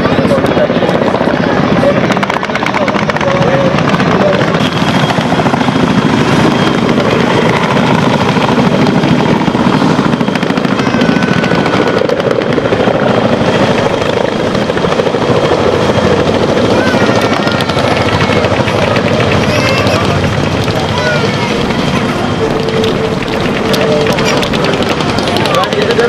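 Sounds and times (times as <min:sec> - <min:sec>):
helicopter rotor chop: 0:00.0 - 0:26.0.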